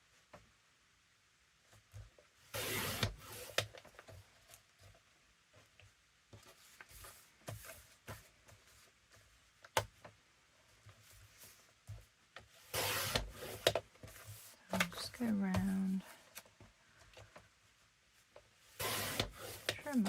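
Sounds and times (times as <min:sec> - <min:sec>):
blade cutting paper: 0:02.6 - 0:03.6, 0:12.7 - 0:13.8, 0:18.8 - 0:20.0
paper rustling: 0:05.6 - 0:17.1.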